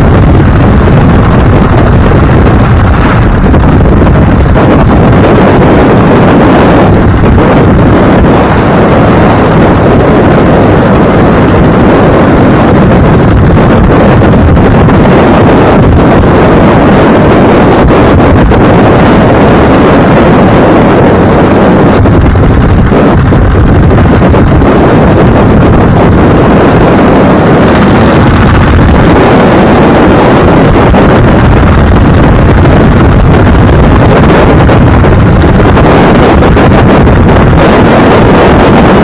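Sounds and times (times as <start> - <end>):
road noise: 0.0 - 16.9
wind rushing over microphone: 0.0 - 39.0.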